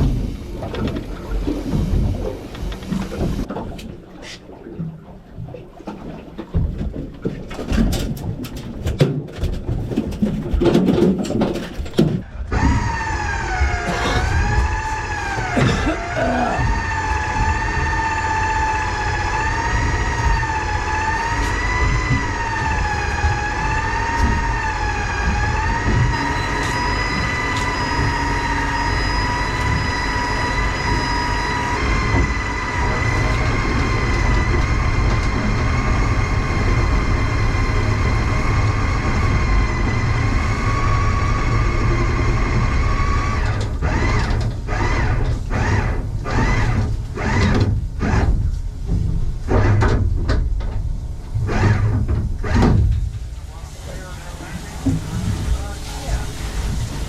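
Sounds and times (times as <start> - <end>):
boat engine rumbling: 0.0 - 57.0
steady high whine: 12.6 - 48.2.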